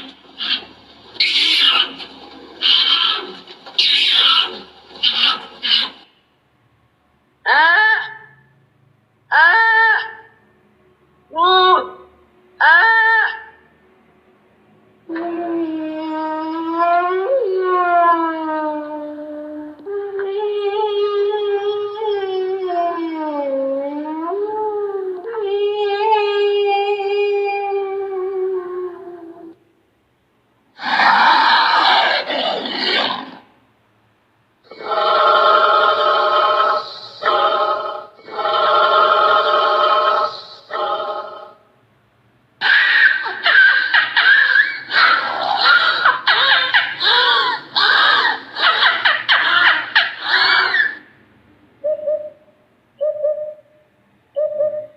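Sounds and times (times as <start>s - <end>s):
animal long pitched call: 0.0s - 6.1s, 30.8s - 33.5s, 34.7s - 41.6s, 42.6s - 51.1s
animal call with shifting pitch: 0.0s - 6.2s, 7.4s - 8.4s, 9.3s - 10.4s, 11.3s - 13.7s, 30.8s - 33.6s, 34.7s - 41.6s, 42.6s - 51.2s, 51.8s - 54.9s
dog howling: 42.6s - 51.0s.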